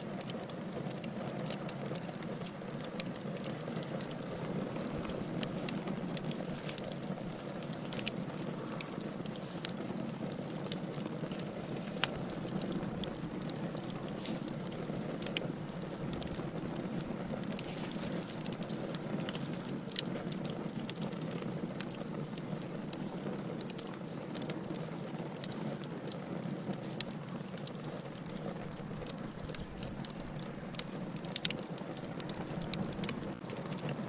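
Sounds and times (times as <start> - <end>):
fire crackling and popping: 0.0 - 34.0
low rush of flame: 0.1 - 24.8.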